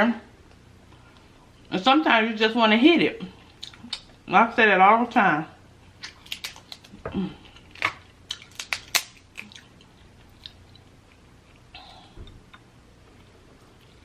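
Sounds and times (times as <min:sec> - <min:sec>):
crab shells cracking: 0:06.0 - 0:09.7
close-up chewing: 0:06.0 - 0:11.7.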